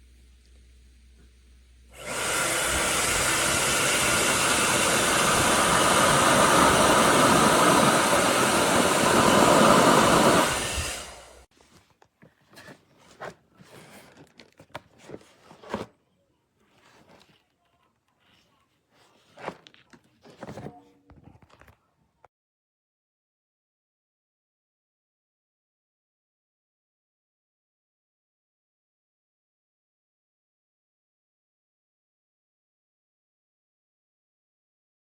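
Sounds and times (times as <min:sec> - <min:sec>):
hair dryer blowing: 0:01.9 - 0:11.5.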